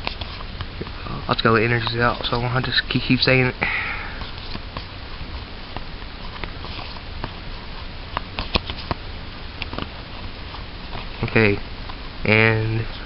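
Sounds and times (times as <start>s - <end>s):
steady hiss: 0.0s - 13.0s
cards tapping and clicking: 8.1s - 9.0s, 9.6s - 9.9s.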